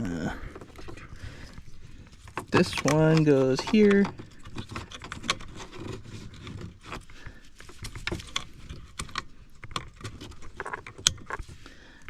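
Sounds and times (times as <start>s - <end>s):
plastic plugs clicking into sockets: 2.3s - 5.4s.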